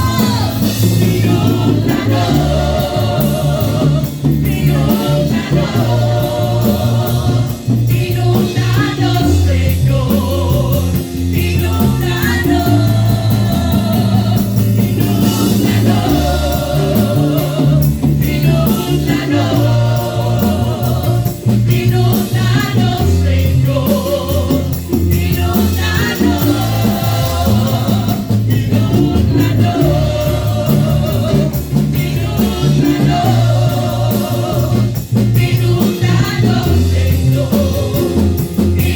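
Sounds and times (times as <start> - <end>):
bass line: 0.0 - 38.9
drum beat: 0.0 - 38.9
voices singing: 0.0 - 38.9.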